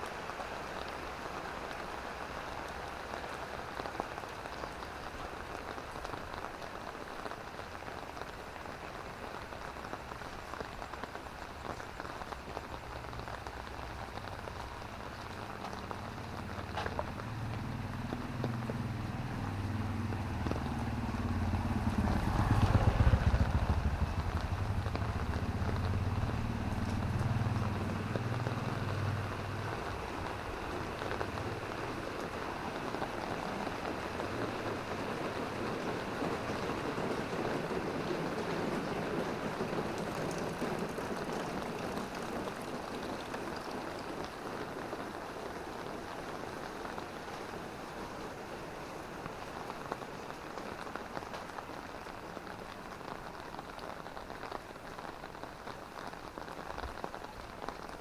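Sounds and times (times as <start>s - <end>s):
rain falling on road: 0.0s - 58.0s
vehicle rumble: 12.6s - 44.4s.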